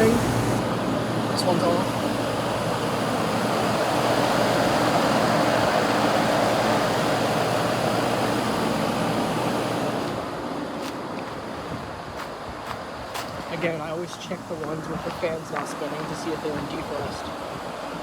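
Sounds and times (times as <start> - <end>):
low compressor hum: 0.0 - 11.8
condenser fan air rush: 0.0 - 18.0.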